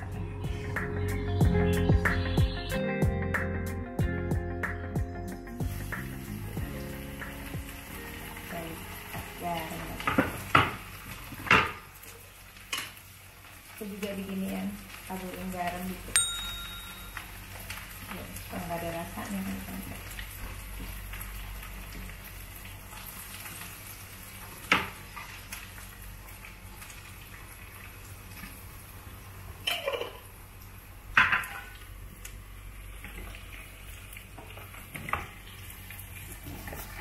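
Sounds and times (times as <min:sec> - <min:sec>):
food sizzling in hot oil: 0:05.6 - 0:29.6, 0:30.3 - 0:37.0.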